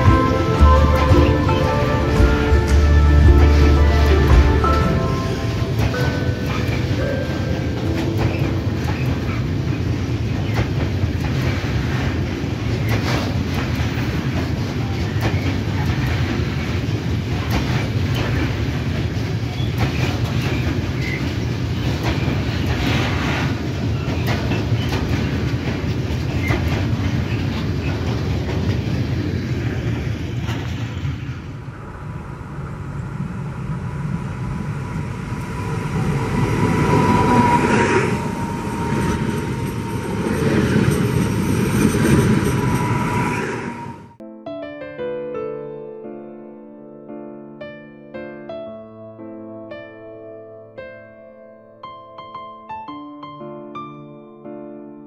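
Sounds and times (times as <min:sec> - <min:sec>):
train wheels clacking on rail joints: 0:00.0 - 0:31.4
electric train approaching: 0:00.0 - 0:44.2
freight train rumbling past: 0:00.0 - 0:44.2
thin steady whine: 0:31.4 - 0:44.2.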